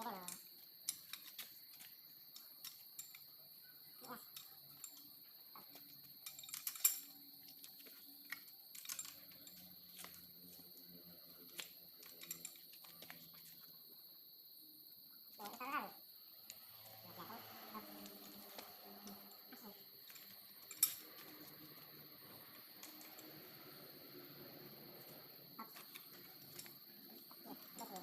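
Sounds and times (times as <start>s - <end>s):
small metallic clicks and taps: 4.3s - 10.8s.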